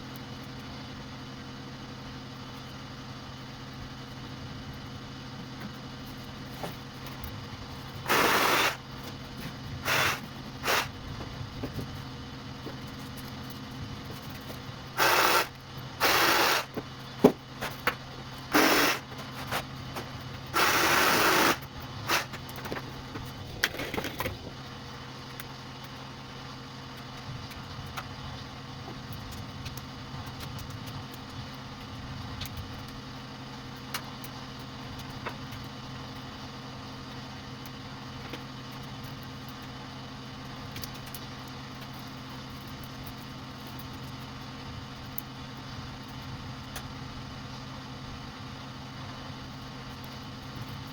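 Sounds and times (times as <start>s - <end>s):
wire stripping machine humming: 0.0s - 50.9s
harsh cutting bursts: 7.7s - 11.1s, 14.8s - 22.6s.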